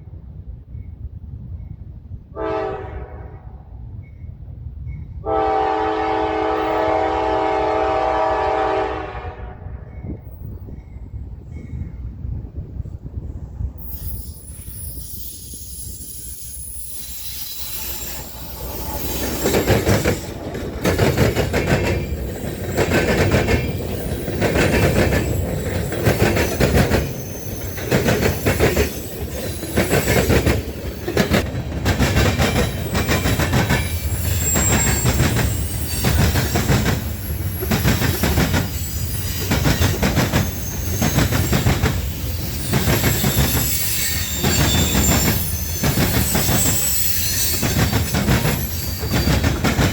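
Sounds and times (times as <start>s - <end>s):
high wheel squeal: 13.8s - 20.4s, 23.7s - 31.4s, 32.7s - 49.6s
train wheels clacking: 13.8s - 49.9s.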